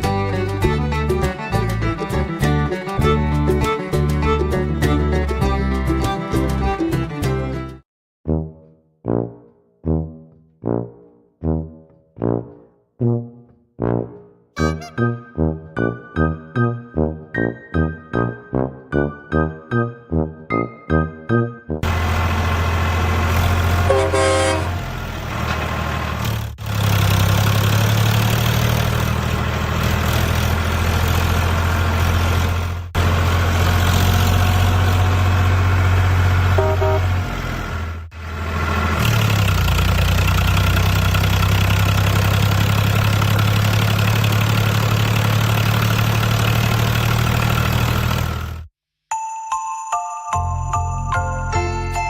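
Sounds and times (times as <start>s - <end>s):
truck horn toot: 14.6s - 15.5s, 23.8s - 25.0s, 36.5s - 37.4s
truck engine running: 21.8s - 48.7s.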